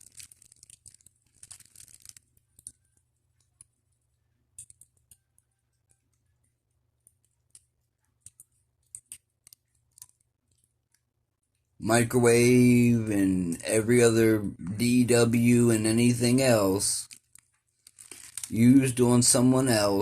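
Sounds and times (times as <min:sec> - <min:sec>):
faint clicks and crackles: 0:00.0 - 0:11.8, 0:17.0 - 0:18.6.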